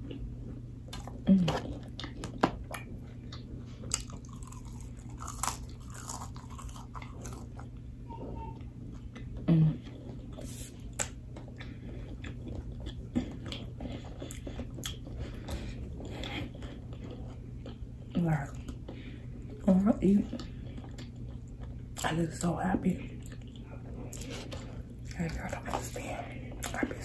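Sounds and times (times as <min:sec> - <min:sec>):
chewing crispy fries: 0:00.0 - 0:07.8, 0:08.9 - 0:22.4, 0:23.0 - 0:27.0
steady low hum: 0:00.0 - 0:27.0
person humming: 0:09.5 - 0:09.8.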